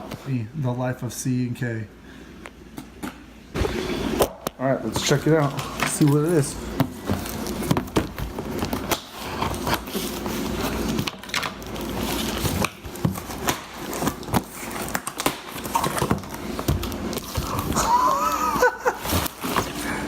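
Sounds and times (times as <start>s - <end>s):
packaging rustling and crinkling: 4.8s - 20.0s.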